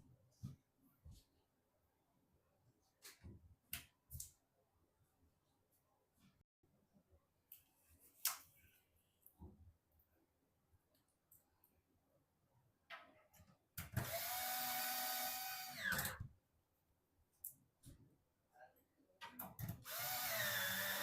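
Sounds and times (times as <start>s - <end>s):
electric screwdriver whining: 14.0s - 16.2s, 19.9s - 21.0s.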